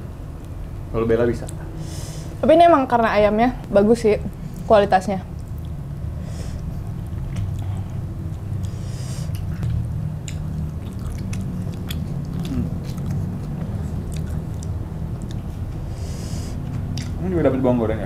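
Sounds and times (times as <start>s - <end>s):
steady low hum: 0.0s - 18.0s
biting and chewing food: 6.9s - 15.9s, 16.6s - 17.2s
wet mouth clicks: 8.6s - 15.5s.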